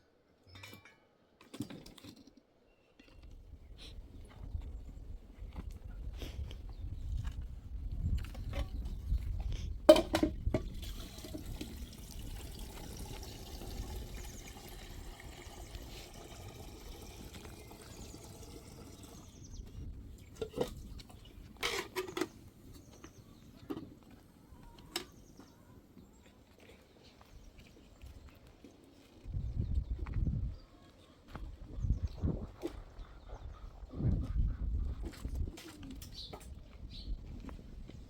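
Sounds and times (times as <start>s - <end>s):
water pouring: 10.7s - 19.6s.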